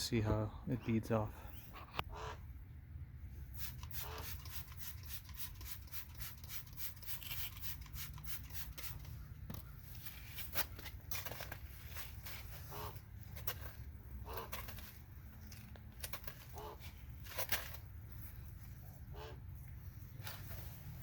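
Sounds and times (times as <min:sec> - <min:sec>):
trigger bottle spraying: 0:03.6 - 0:09.2.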